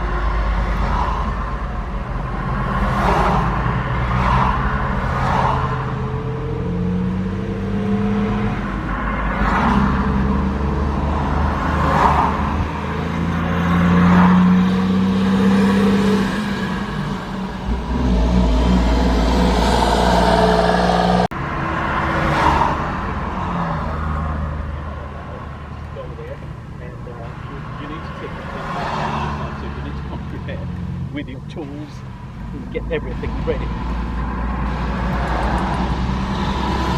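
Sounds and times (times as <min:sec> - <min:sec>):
truck engine revving: 0:00.0 - 0:36.9.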